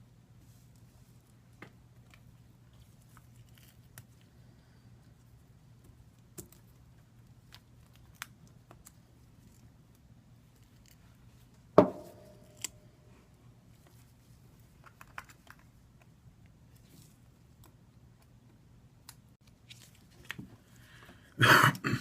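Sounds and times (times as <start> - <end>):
tool knocking on bench: 11.8 - 12.2.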